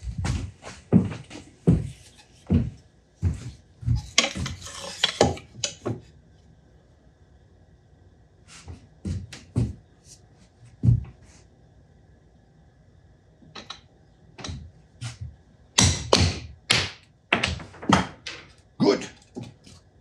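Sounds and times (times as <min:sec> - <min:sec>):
tools and parts knocking: 0:13.6 - 0:14.7.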